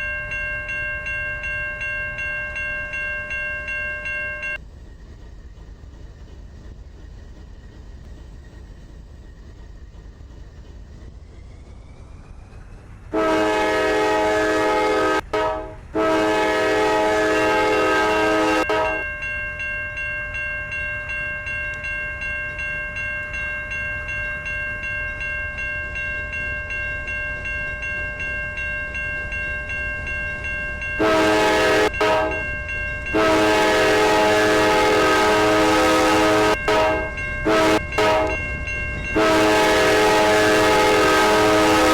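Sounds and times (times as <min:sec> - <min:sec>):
pulsing ringing tone: 0:00.0 - 0:04.6
locomotive air horn blasts: 0:13.2 - 0:19.1, 0:31.0 - 0:32.5, 0:33.1 - 0:38.4, 0:39.1 - 0:41.9.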